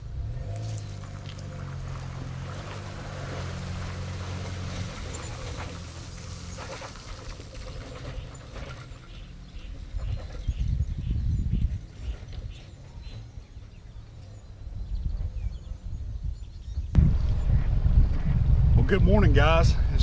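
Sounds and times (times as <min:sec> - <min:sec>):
boat motor running: 0:00.0 - 0:14.6.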